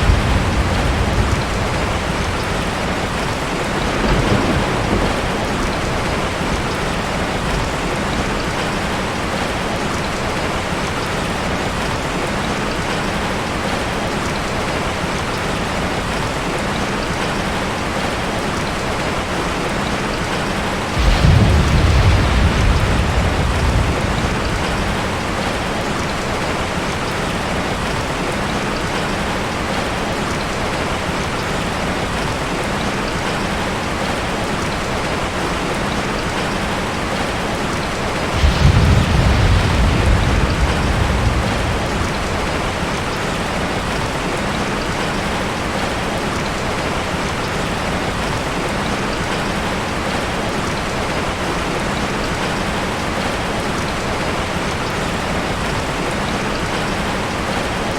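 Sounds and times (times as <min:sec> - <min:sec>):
thunder rumble: 0:00.0 - 0:09.6, 0:20.8 - 0:28.1, 0:37.9 - 0:45.0
steady rain falling: 0:00.0 - 0:57.9.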